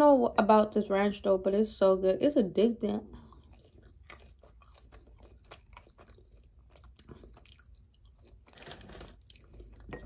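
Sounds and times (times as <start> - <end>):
person chewing food: 3.1 - 10.0.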